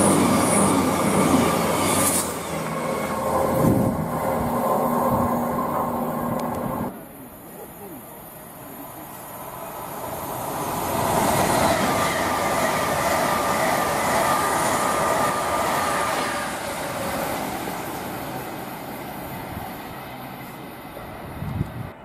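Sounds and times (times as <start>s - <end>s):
express train passing: 0.0s - 22.0s
train whine: 0.0s - 22.0s.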